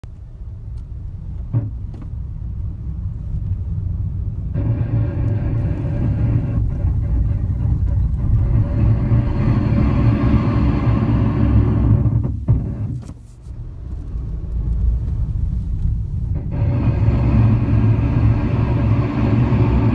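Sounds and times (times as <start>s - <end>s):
car low rumble: 0.0s - 19.9s
metallic brake groan: 4.5s - 12.9s, 16.2s - 19.9s.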